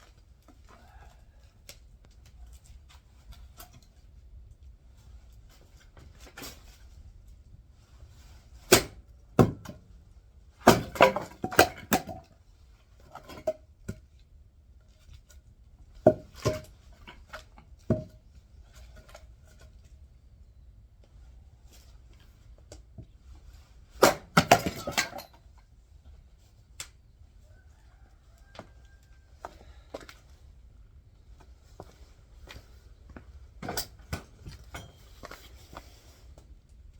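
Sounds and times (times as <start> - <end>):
axe splitting firewood: 8.5 - 10.0, 10.6 - 12.3, 16.0 - 19.7, 23.9 - 25.4, 33.6 - 35.9.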